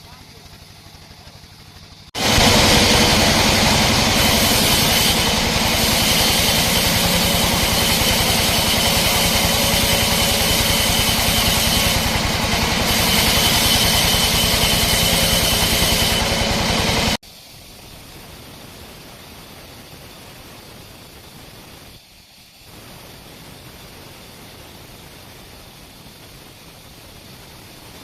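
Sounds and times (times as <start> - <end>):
sawmill machinery running: 0.0 - 17.2.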